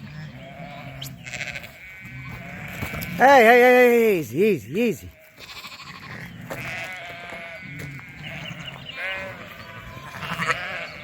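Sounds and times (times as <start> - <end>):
sheep and lambs bleating: 0.0 - 11.0.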